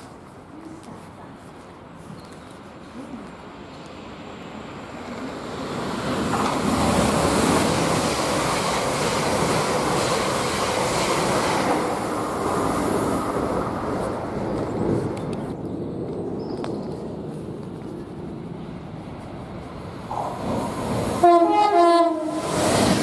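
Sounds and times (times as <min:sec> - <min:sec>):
electric train passing at speed: 0:01.8 - 0:23.0.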